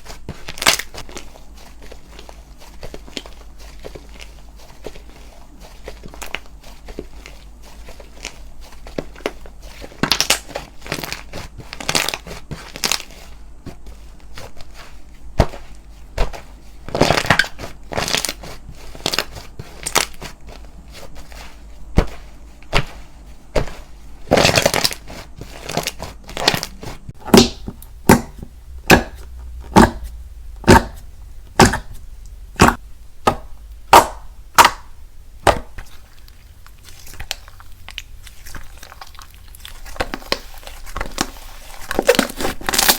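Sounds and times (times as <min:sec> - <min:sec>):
slime crackling and popping: 0:00.4 - 0:01.3, 0:09.1 - 0:13.2, 0:16.9 - 0:20.2, 0:24.3 - 0:42.9.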